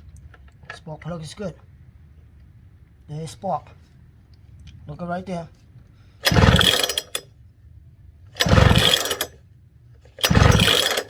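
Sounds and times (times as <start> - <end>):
engine cranking whir: 6.2 - 7.2, 8.4 - 9.4, 10.1 - 11.0
recoil starter pull: 6.2 - 7.2, 8.4 - 9.4, 10.1 - 11.0.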